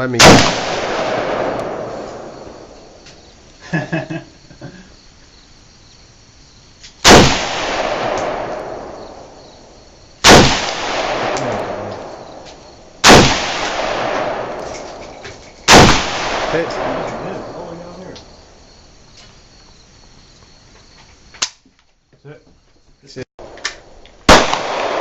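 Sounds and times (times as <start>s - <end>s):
rifle shots echoing: 0.0s - 3.0s, 7.0s - 9.4s, 10.2s - 18.2s, 23.4s - 25.0s.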